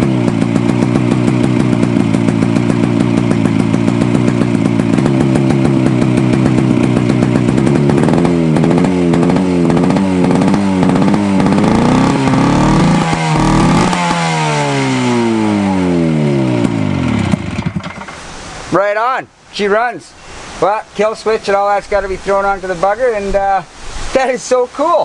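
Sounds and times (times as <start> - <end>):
snowmobile engine revving: 0.0 - 17.8.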